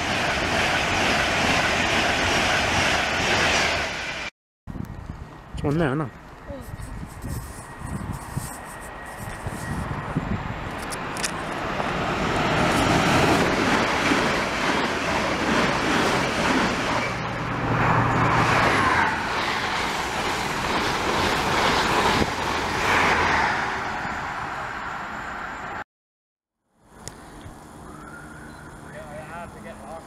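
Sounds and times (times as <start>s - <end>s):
train wheels rushing on rails: 0.0s - 4.3s, 5.4s - 25.8s.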